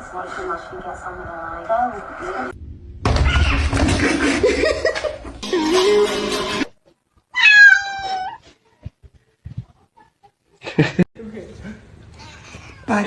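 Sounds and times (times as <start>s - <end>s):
cat meowing: 7.3s - 8.4s.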